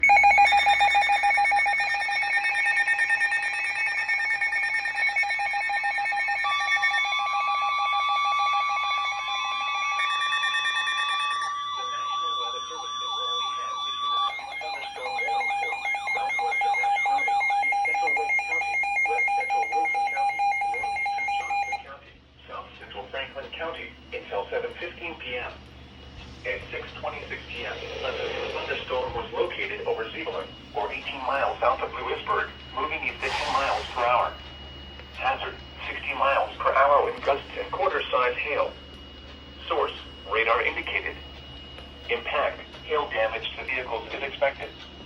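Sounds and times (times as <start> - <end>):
pulsing electronic alert tones: 0.0 - 21.8, 27.2 - 43.3
warbling tone: 27.1 - 31.6.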